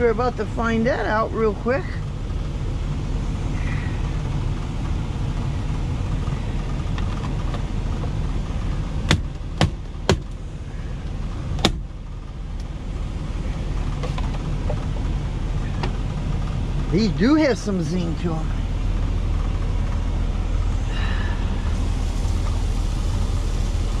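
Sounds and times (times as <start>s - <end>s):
diesel truck engine idling: 0.0s - 24.0s
sharp knocks: 9.1s - 10.3s, 11.6s - 11.8s.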